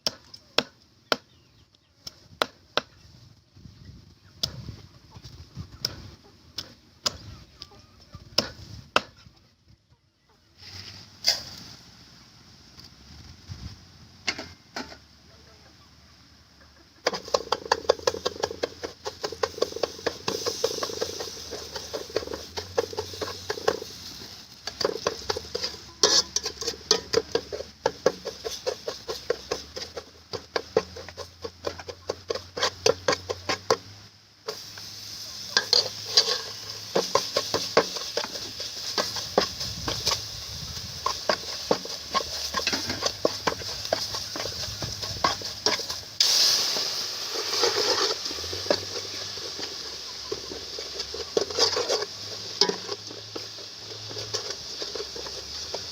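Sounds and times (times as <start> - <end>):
food sizzling: 16.9 - 55.9
spatula scraping a pan: 17.0 - 55.9.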